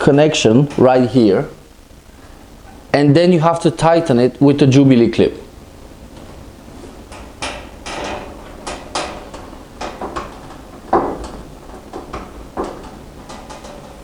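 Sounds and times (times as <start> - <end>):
clicks knocks and scrapes of hose: 6.1 - 14.0.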